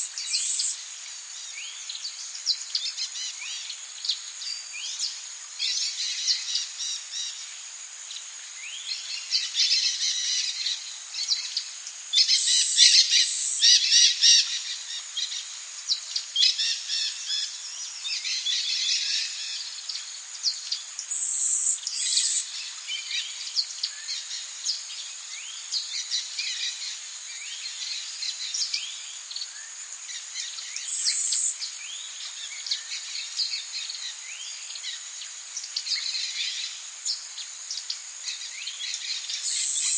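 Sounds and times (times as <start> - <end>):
high-pitched insect drone: 0.0 - 0.8, 21.1 - 22.5, 30.8 - 31.6, 39.1 - 39.9
birds chirping and calling: 30.8 - 31.5, 39.5 - 39.9.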